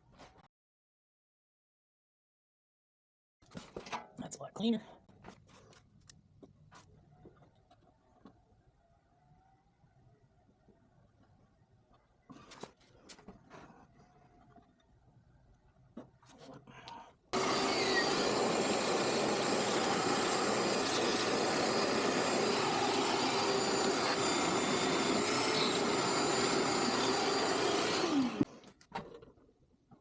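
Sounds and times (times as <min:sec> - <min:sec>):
vacuum cleaner running: 0:17.4 - 0:28.5.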